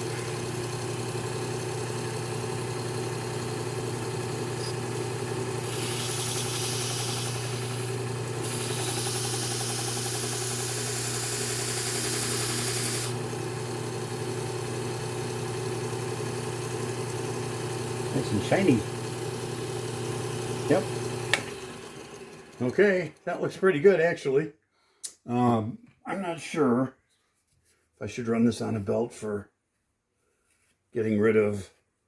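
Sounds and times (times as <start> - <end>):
belt grinder motor running: 0.0 - 23.2
blade grinding on belt: 4.5 - 13.2.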